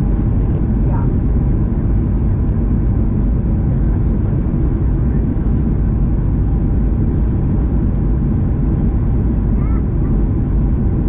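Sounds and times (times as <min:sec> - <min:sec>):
airplane engines rumbling: 0:00.0 - 0:11.0.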